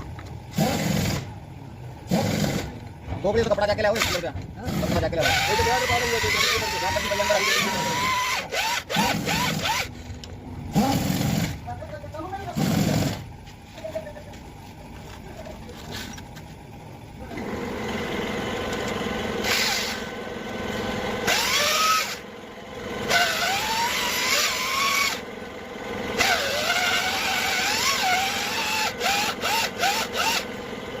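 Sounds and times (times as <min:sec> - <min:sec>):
power drill whirring: 0:04.0 - 0:11.6, 0:17.3 - 0:30.9.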